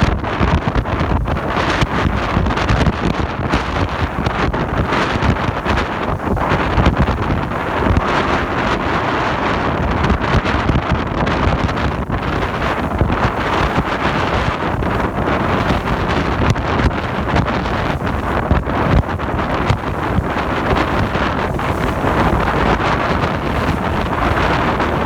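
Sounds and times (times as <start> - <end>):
wind buffeting microphone: 0.0 - 25.0
waves washing: 3.3 - 25.0.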